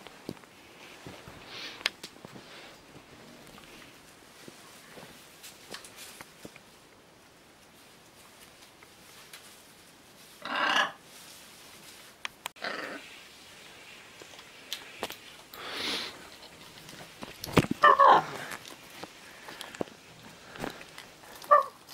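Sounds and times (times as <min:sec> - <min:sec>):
macaw harsh calls: 0:10.4 - 0:11.0.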